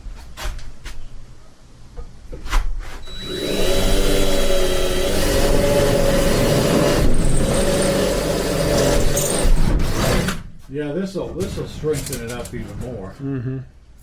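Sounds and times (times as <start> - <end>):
power drill driving screw: 3.0 - 10.4.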